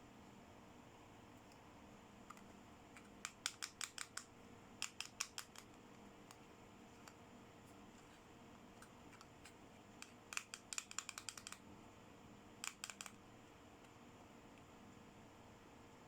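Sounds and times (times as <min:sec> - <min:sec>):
toy packaging clicks: 0:03.0 - 0:05.7, 0:10.0 - 0:11.6, 0:12.6 - 0:13.2.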